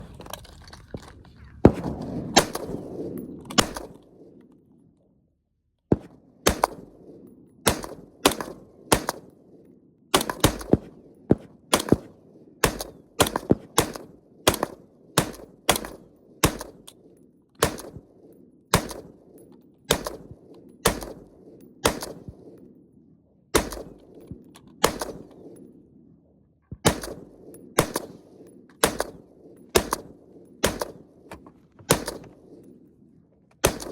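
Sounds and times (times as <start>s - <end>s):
rifle firing single shots: 1.6s - 4.3s, 5.9s - 9.5s, 10.1s - 17.0s, 17.6s - 22.6s, 23.5s - 25.6s, 26.8s - 32.6s, 33.6s - 33.9s.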